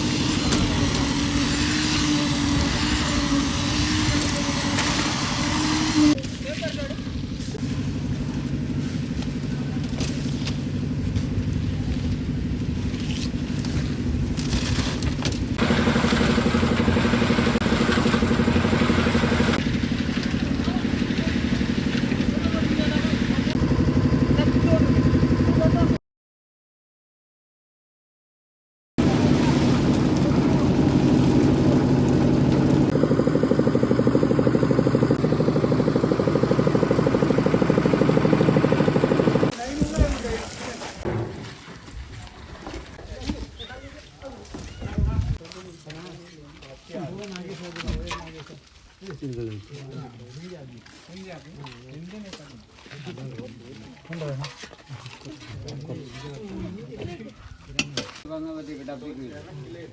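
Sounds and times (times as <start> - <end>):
engine humming: 7.2 - 25.9, 29.0 - 39.5.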